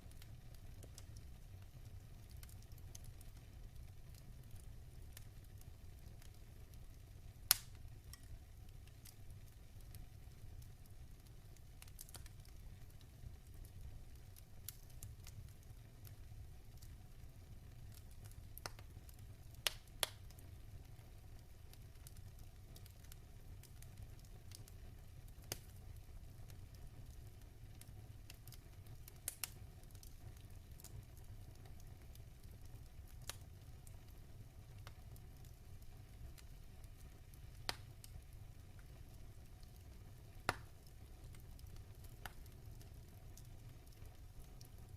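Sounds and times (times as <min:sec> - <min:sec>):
fire rumbling and crackling: 0:00.0 - 0:44.9
burning logs popping: 0:04.4 - 0:09.2, 0:10.6 - 0:13.1, 0:17.8 - 0:20.6, 0:21.8 - 0:25.8, 0:26.5 - 0:44.9.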